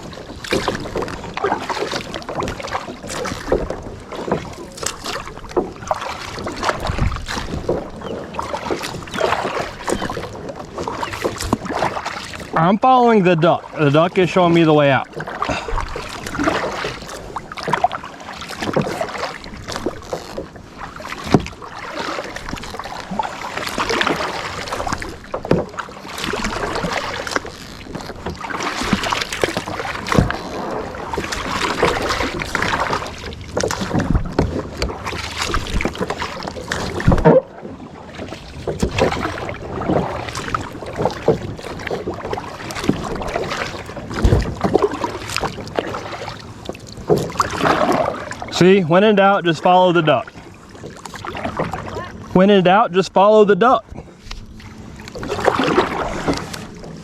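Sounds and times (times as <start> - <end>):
paddle splashing in water: 0.0 - 57.0.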